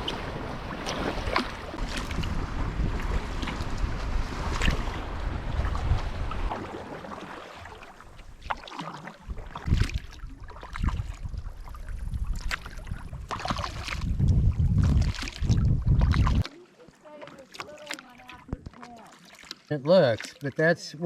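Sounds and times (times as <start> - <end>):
wind rumbling on microphone: 0.0 - 8.4, 9.2 - 16.5
paddle strokes splashing: 0.0 - 21.0.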